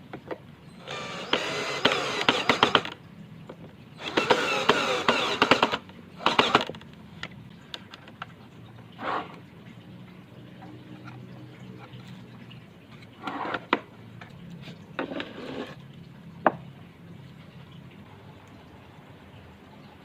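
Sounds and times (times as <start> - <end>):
objects scraping: 13.0 - 13.8, 14.6 - 15.8.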